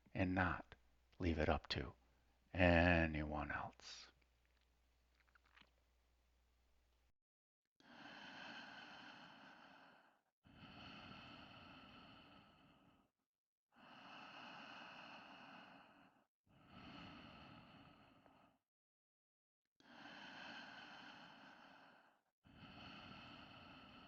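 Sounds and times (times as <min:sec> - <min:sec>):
person breathing deeply: 0:07.8 - 0:13.1, 0:19.8 - 0:24.0.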